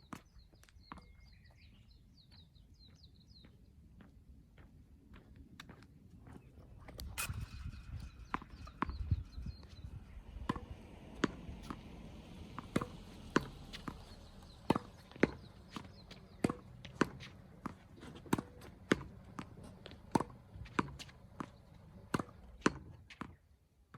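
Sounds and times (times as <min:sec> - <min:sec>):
tennis ball bouncing on court: 0:07.0 - 0:23.4
tennis racket hitting ball: 0:07.0 - 0:23.4.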